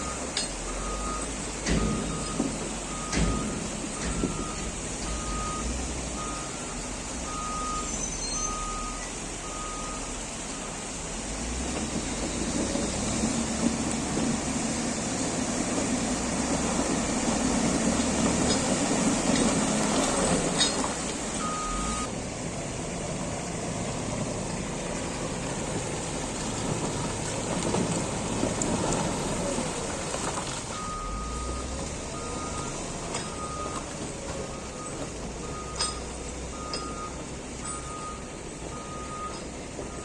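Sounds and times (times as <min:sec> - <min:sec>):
reversing alarm beeping: 0:00.0 - 0:10.8, 0:21.4 - 0:22.1, 0:30.7 - 0:33.9, 0:34.5 - 0:40.0
diesel engine working under load: 0:00.0 - 0:40.0.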